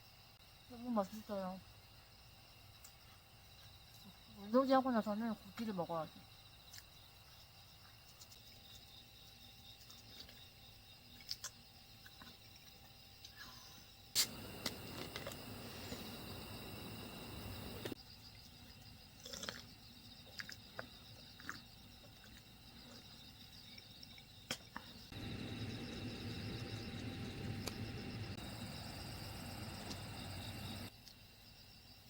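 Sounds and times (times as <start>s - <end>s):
insects chirping: 0.0s - 32.0s.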